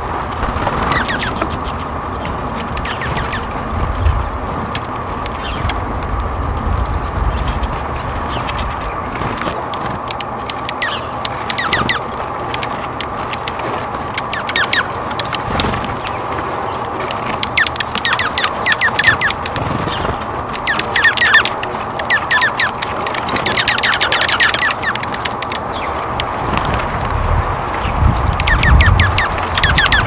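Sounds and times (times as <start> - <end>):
outdoor background hiss: 0.0 - 30.0
small birds chirping: 0.0 - 30.0.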